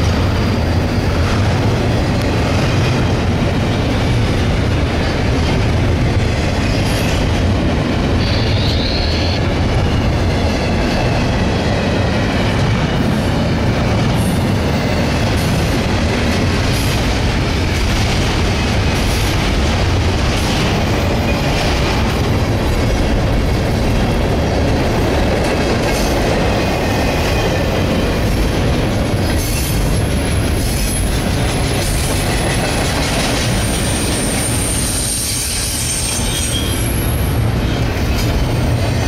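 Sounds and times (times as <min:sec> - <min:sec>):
train wheels rumbling on rail: 0:00.0 - 0:39.0
high-pitched wheel squeals: 0:08.2 - 0:09.4, 0:33.8 - 0:37.4.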